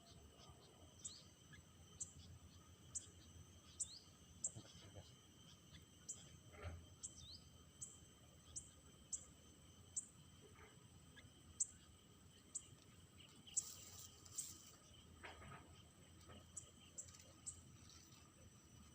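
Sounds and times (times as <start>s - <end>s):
crickets trilling: 0.0s - 18.9s.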